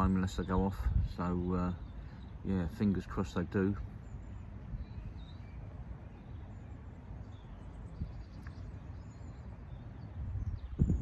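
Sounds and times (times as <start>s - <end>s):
wind on microphone: 0.0s - 2.0s, 7.5s - 11.0s
faint bird chirps: 0.0s - 11.0s.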